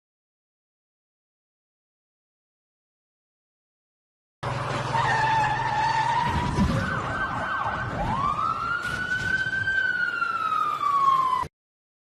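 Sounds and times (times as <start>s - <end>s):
emergency siren: 4.4s - 11.5s.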